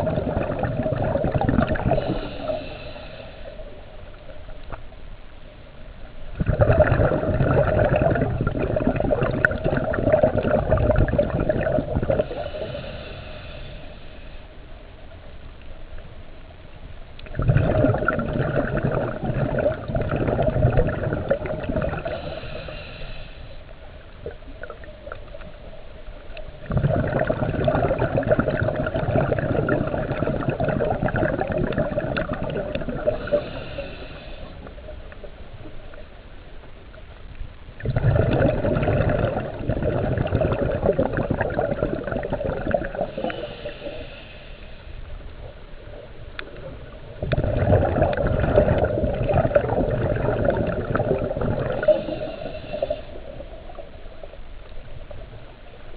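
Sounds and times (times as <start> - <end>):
underwater exhalation bubbles: 0.0 - 2.3, 6.4 - 12.5, 17.2 - 22.3, 26.6 - 33.6, 37.8 - 43.6, 46.4 - 53.4
regulator hiss: 1.4 - 6.4, 12.0 - 17.0, 21.7 - 26.7, 31.4 - 37.8, 40.9 - 47.2, 50.8 - 55.9.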